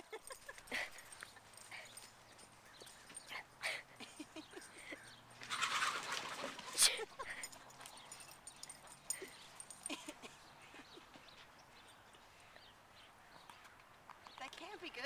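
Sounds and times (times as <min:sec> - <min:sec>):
chickens calling in alarm: 0:04.6 - 0:07.0.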